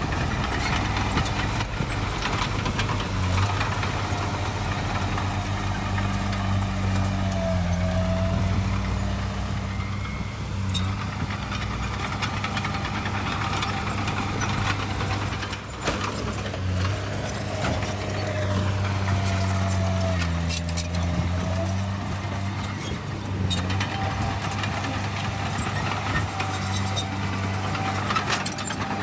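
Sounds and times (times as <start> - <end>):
heavy diesel engine running: 0.0 - 29.0
knocks and clanks: 10.7 - 29.0.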